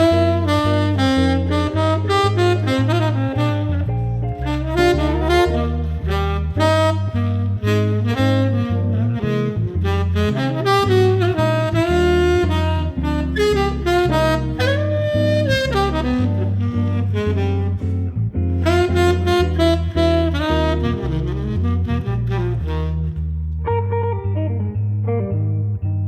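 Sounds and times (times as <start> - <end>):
saxophone melody: 0.0 - 24.8
walking bass line: 0.0 - 26.0.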